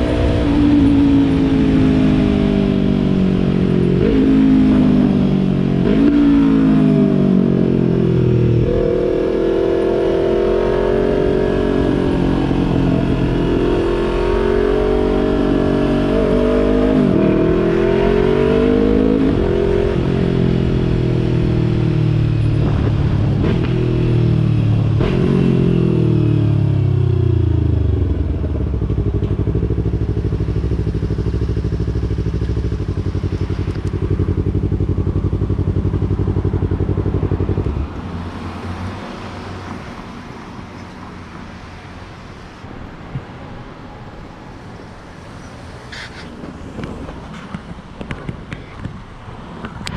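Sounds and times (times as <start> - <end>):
motorcycle engine revving through gears: 0.0 - 38.4.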